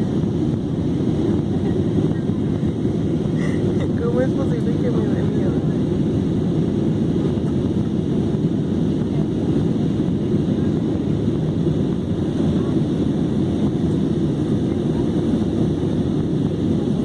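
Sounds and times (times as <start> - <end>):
airliner cabin engine rumble: 0.0 - 17.0.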